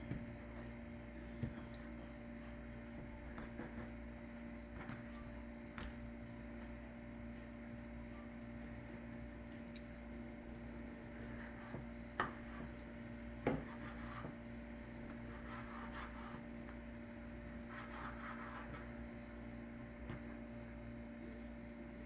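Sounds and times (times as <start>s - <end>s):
steady electrical hum: 0.0s - 22.0s
rubbing and handling sounds: 10.6s - 19.4s.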